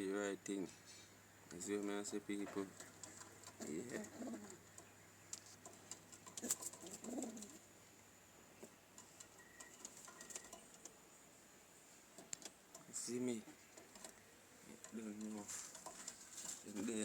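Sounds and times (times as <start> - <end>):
pigeon cooing: 2.4 - 5.0, 5.6 - 7.7.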